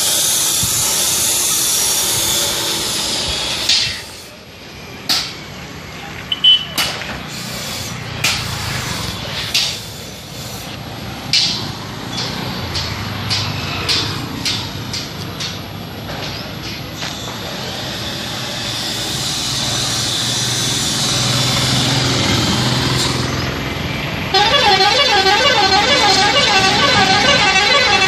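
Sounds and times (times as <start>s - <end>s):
loud warbling horn: 24.3s - 28.0s.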